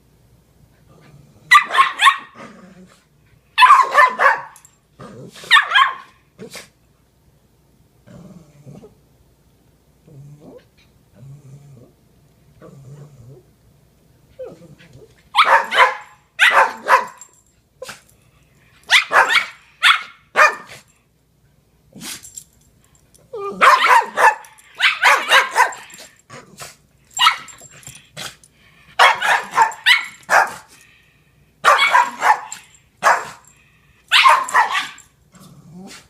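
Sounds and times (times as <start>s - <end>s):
dog barking: 1.5s - 2.4s, 3.6s - 4.6s, 5.5s - 6.2s, 15.4s - 17.3s, 18.9s - 20.8s, 23.6s - 25.9s, 27.2s - 27.5s, 29.0s - 30.7s, 31.6s - 33.4s, 34.1s - 35.0s
puppy barking: 1.5s - 2.4s, 3.6s - 4.6s, 5.5s - 6.2s, 15.4s - 17.3s, 18.9s - 20.8s, 23.6s - 25.9s, 27.2s - 27.6s, 29.0s - 30.7s, 31.6s - 33.4s, 34.1s - 35.0s.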